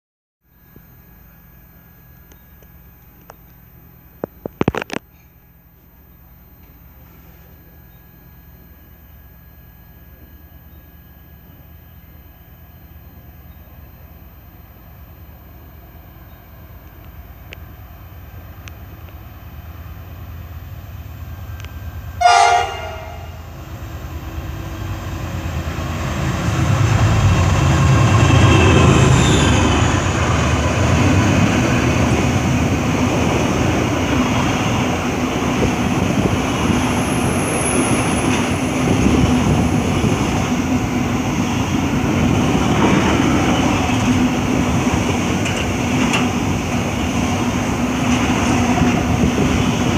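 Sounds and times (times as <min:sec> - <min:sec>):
diesel locomotive rumble: 0:00.6 - 0:49.9
train horn blast: 0:22.2 - 0:23.6.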